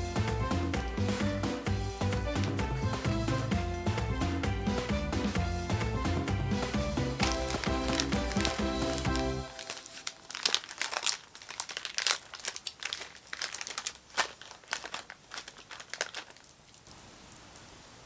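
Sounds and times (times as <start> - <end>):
background music: 0.0 - 10.8
packaging crinkling: 7.2 - 17.0.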